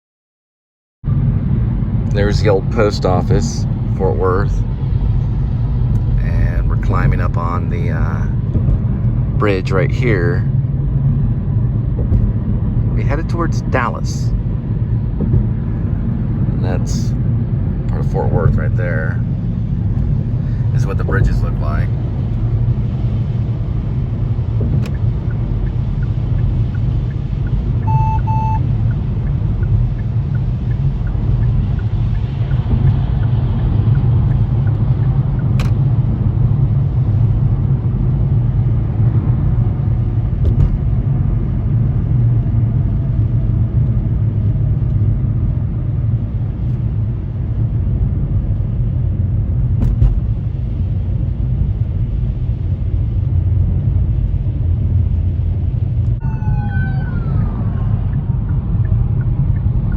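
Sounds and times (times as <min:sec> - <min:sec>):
car road and engine rumble: 0:01.0 - 0:59.9
double electronic beep: 0:27.8 - 0:28.7.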